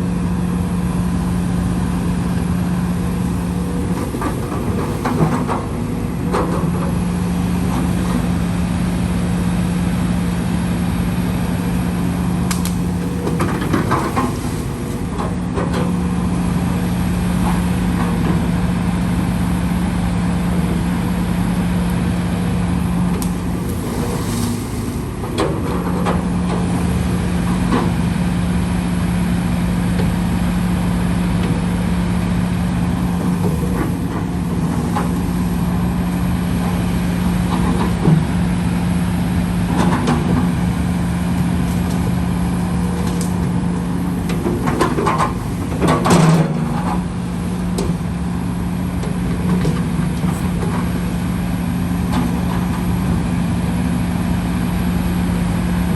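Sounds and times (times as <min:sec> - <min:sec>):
diesel engine running: 0:00.0 - 0:55.9
machinery knocks and clanks: 0:03.2 - 0:08.4, 0:11.9 - 0:18.6, 0:32.9 - 0:36.8, 0:41.8 - 0:48.2.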